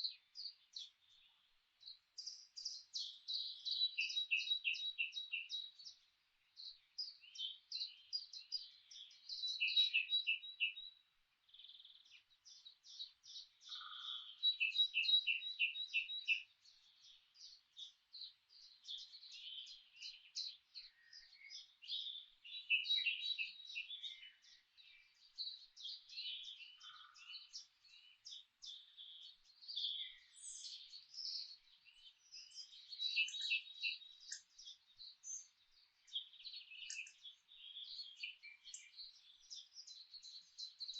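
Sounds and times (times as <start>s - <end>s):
songbirds chirping and singing: 0.0s - 40.9s.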